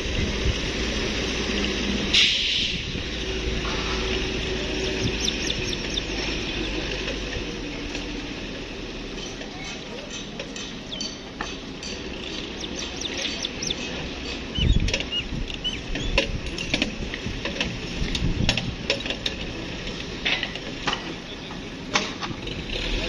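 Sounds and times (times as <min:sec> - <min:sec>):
small birds chirping: 0:04.0 - 0:07.1, 0:09.1 - 0:16.3
low background rumble: 0:10.9 - 0:18.8.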